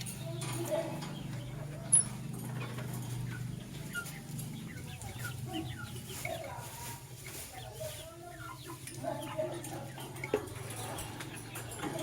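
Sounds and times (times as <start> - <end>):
lovebirds chirping: 0.0 - 12.0.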